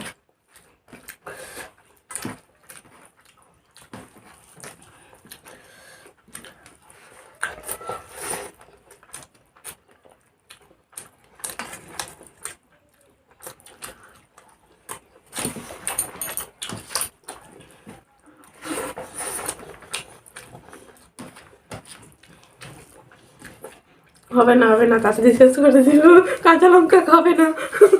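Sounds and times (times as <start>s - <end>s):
chewing and smacking: 0.0s - 24.4s.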